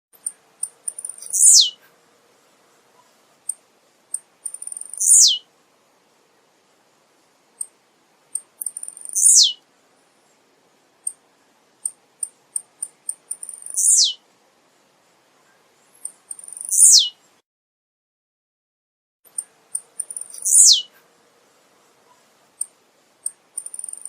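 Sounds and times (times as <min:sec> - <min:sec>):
bird high ticks and buzzy note: 0:03.5 - 0:05.4, 0:11.8 - 0:14.2, 0:19.3 - 0:20.8, 0:22.6 - 0:24.0.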